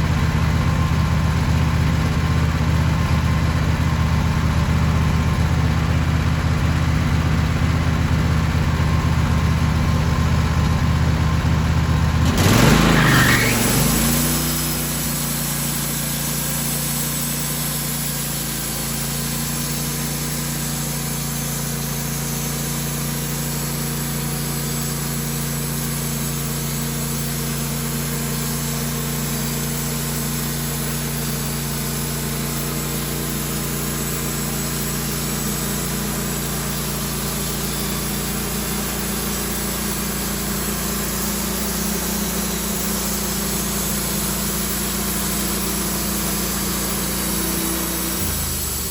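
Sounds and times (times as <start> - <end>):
engine running steadily: 0.0 - 48.9.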